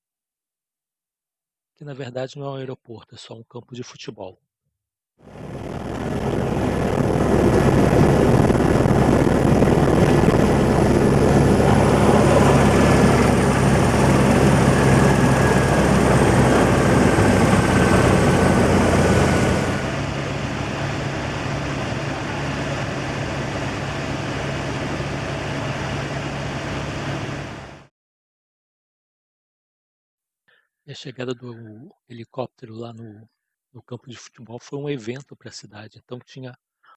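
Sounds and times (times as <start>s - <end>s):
helicopter rotor and turbine: 5.2s - 27.9s.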